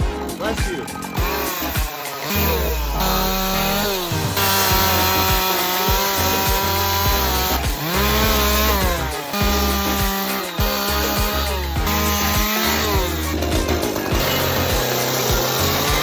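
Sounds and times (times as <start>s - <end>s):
background music: 0.0s - 16.0s
chainsaw revving cutting wood: 0.1s - 16.0s.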